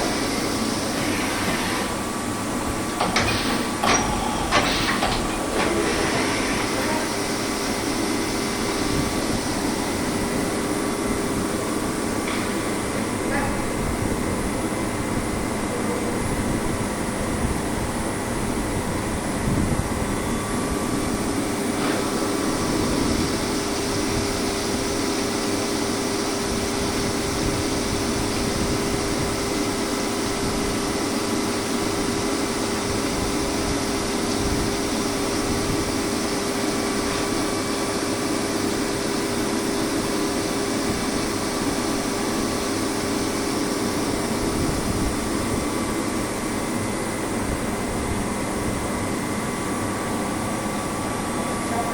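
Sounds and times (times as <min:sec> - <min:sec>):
milling machine running: 0:00.0 - 0:16.4
constant machine tone: 0:00.0 - 0:51.9.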